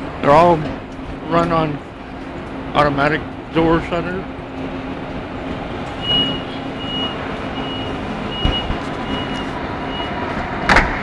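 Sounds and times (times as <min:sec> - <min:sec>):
steady hum: 0:00.0 - 0:10.8
high door warning beeps: 0:06.0 - 0:10.8
low thud: 0:08.4 - 0:08.9.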